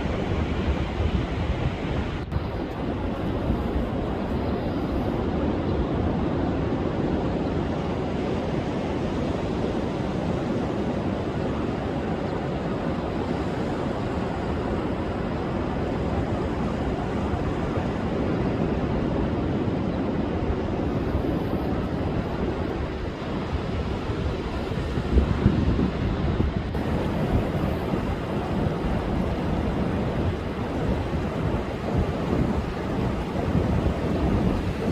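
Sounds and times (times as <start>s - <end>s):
storm surf breaking on beach: 0.0s - 34.9s
wind rumbling on microphone: 0.0s - 34.9s.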